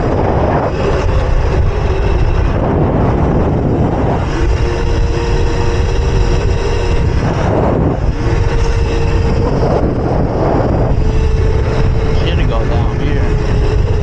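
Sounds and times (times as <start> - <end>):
electric motor whine: 0.0 - 14.0
wind rushing over microphone: 0.0 - 14.0.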